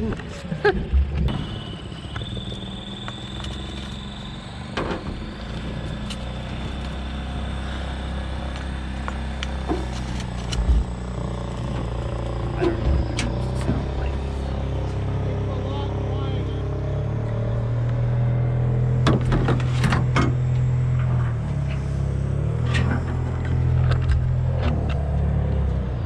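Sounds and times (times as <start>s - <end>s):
boat engine idling: 0.0s - 25.8s
low thumps: 9.7s - 15.2s.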